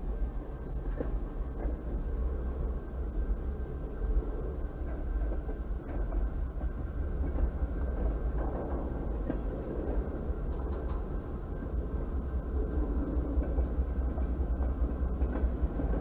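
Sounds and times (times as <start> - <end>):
muffled freight cars rumbling: 0.0 - 16.0
faint clicks: 4.8 - 11.3.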